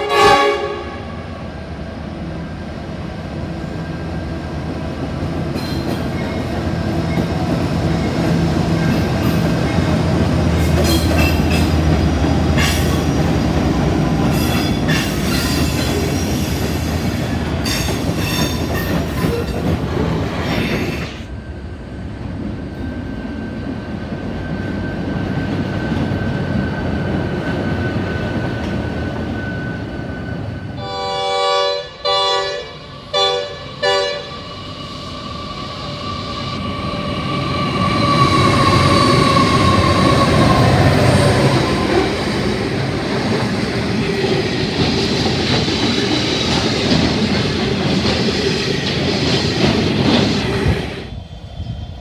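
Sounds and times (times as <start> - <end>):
locomotive horn blasts: 0.0 - 1.2, 30.8 - 34.4
diesel locomotive engine drone: 0.0 - 52.0
train rumbling: 0.0 - 52.0.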